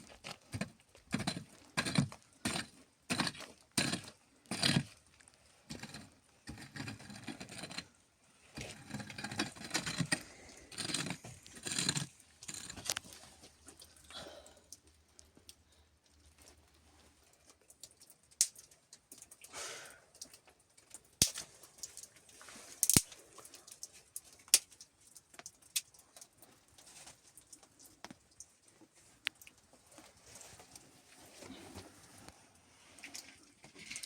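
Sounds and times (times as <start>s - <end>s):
small objects clicking and knocking: 8.6s - 13.9s, 17.5s - 19.5s, 22.8s - 26.5s.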